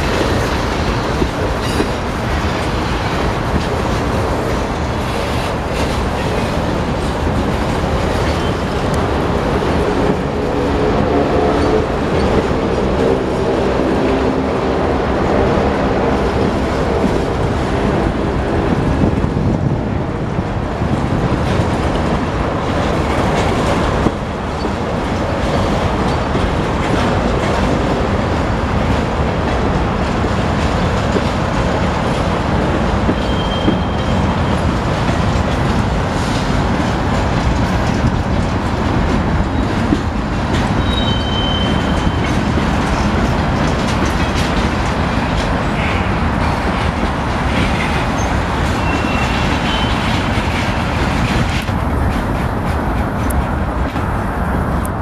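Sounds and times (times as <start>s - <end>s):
wheels squealing on rails: 0.0s - 17.9s, 32.6s - 36.4s, 37.5s - 52.5s
freight train wheels clattering: 0.0s - 55.0s.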